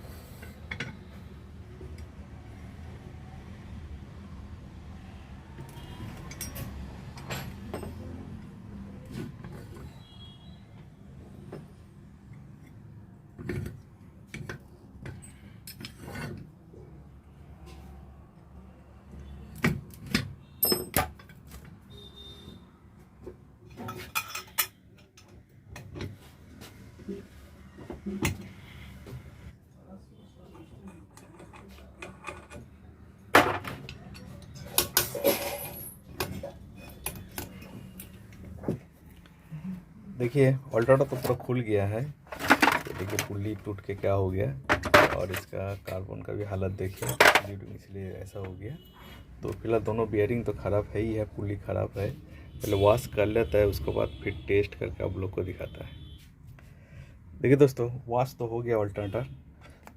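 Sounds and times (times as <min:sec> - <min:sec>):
metal clanks and taps: 0:06.2 - 0:08.2, 0:13.4 - 0:16.5, 0:30.9 - 0:32.7
metal tools knocking and clinking: 0:06.2 - 0:08.2, 0:20.1 - 0:21.4, 0:23.8 - 0:26.1, 0:44.7 - 0:45.4, 0:47.0 - 0:47.5.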